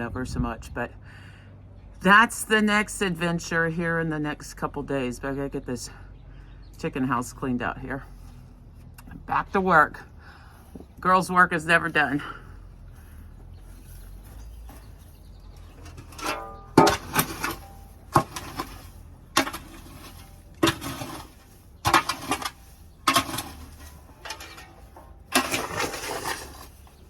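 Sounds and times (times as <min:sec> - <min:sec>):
hand tool scraping litter: 0:15.6 - 0:27.0.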